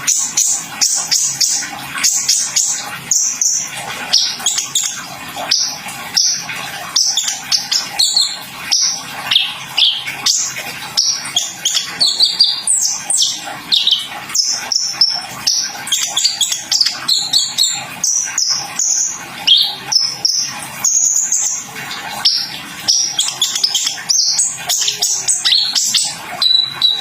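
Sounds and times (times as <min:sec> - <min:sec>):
sunbird singing high chirps: 0:07.0 - 0:21.6, 0:22.2 - 0:27.0.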